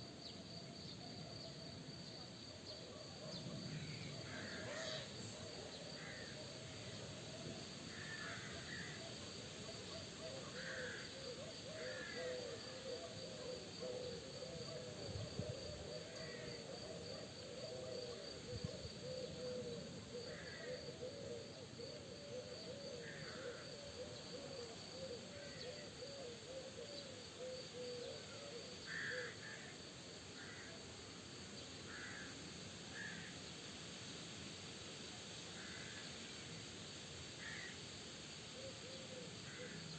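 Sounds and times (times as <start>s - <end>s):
wind hiss: 30.4s - 39.9s.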